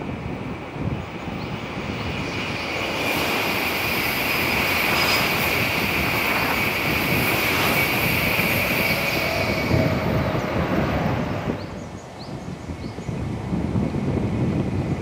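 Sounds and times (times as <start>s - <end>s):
high-speed train rushing past: 0.0s - 15.0s
high-pitched whine: 2.0s - 11.0s.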